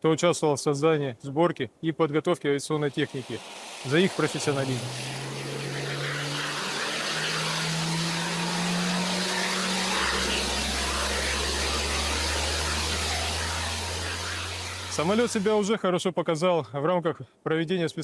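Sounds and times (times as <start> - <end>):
jet engines running: 2.9 - 15.7
deep drone: 3.8 - 15.6.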